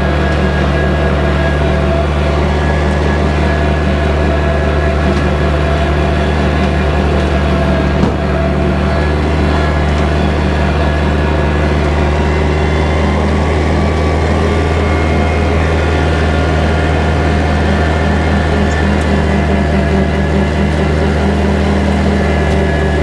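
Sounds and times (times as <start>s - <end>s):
tractor diesel engine running: 0.0s - 23.0s
brief knock: 8.0s - 8.2s.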